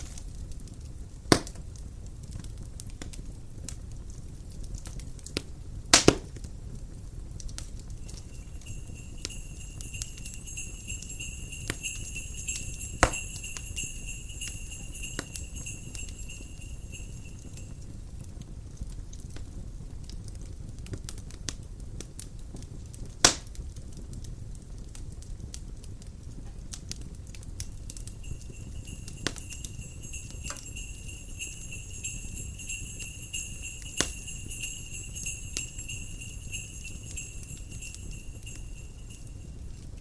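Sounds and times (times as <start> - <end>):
wood fire crackling: 0.0 - 40.0
small sleigh chimes jangling: 7.9 - 18.2, 27.6 - 40.0
low steady rumble: 24.3 - 40.0.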